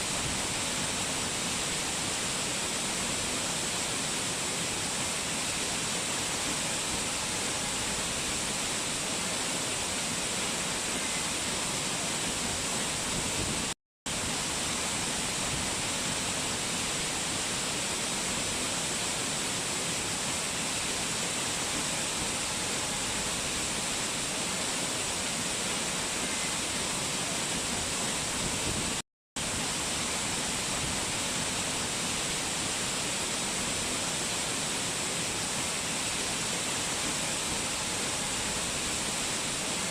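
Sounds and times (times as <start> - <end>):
rushing mountain water: 0.0 - 39.9.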